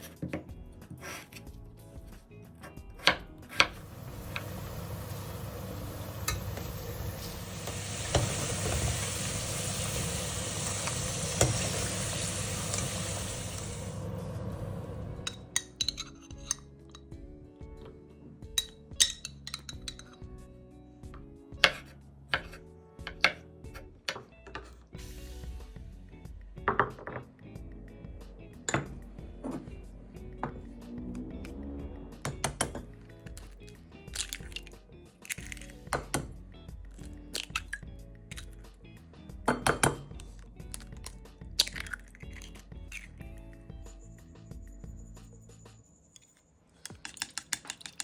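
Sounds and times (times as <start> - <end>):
light background music: 0.0 - 48.0
food sizzling in a frying pan: 3.8 - 15.5
utensils clinking against dishes: 15.3 - 17.1, 18.6 - 20.2.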